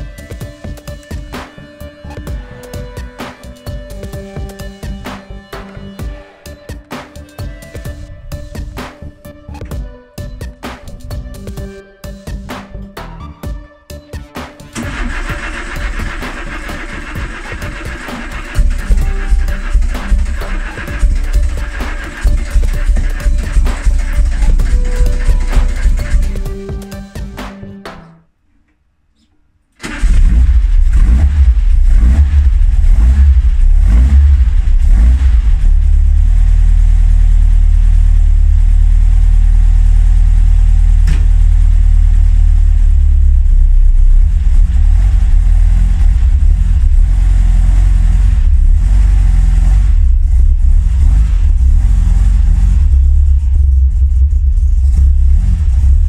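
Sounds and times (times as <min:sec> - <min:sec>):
music: 0:00.0 - 0:28.5, 0:29.8 - 0:38.2, 0:40.7 - 0:56.0
car engine running loud: 0:14.8 - 0:26.6, 0:29.9 - 0:56.0.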